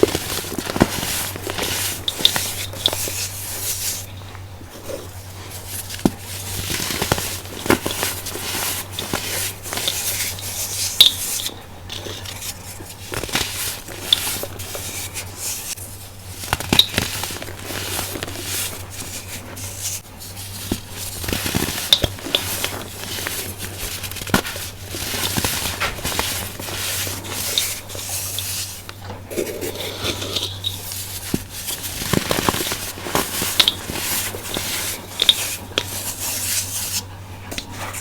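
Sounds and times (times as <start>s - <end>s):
baking soda being crushed: 0.0s - 37.7s.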